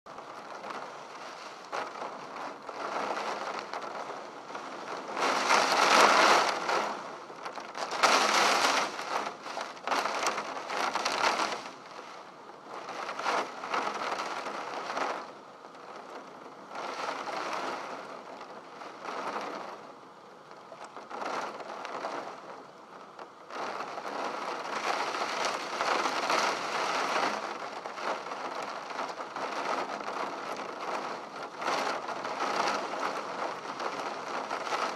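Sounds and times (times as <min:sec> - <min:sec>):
heavy rain on a window: 0:00.1 - 0:34.9.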